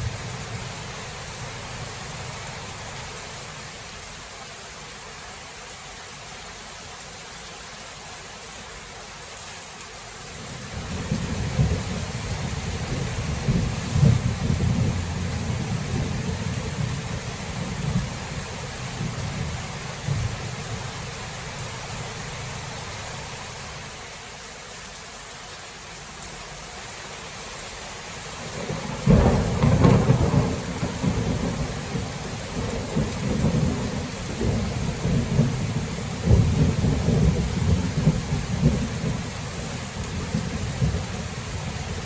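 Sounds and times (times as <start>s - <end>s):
rain hissing: 0.0s - 42.0s
thunder rumbling: 10.6s - 21.4s, 28.5s - 42.0s.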